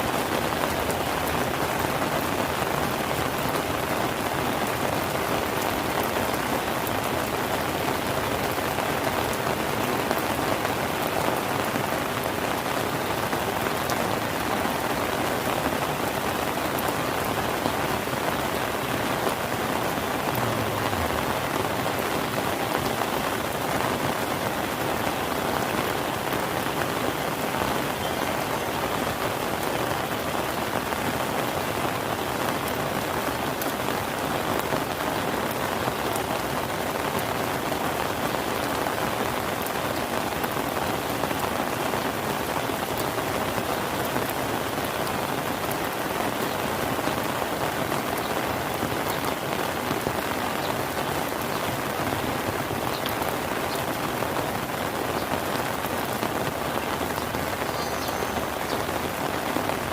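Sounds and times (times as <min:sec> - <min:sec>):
rain falling on surfaces: 0:00.0 - 0:59.9
raindrops ticking: 0:00.2 - 0:59.9.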